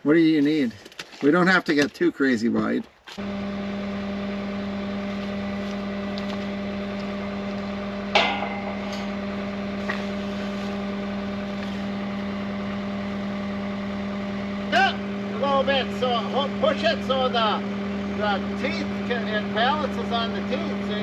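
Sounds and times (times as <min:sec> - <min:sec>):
skid steer engine running: 0:03.2 - 0:21.0
sharp knock: 0:08.1 - 0:09.0.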